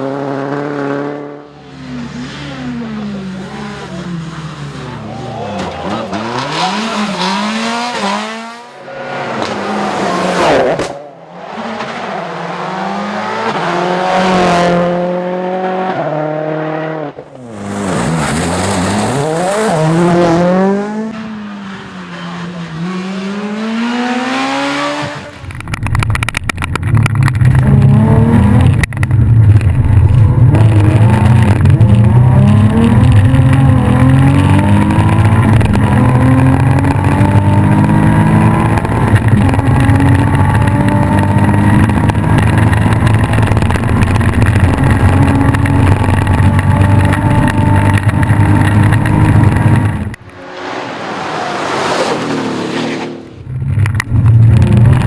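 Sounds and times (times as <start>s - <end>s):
car rushing past: 0.0s - 25.6s, 48.3s - 55.0s
rally car engine at hard throttle: 0.0s - 55.0s.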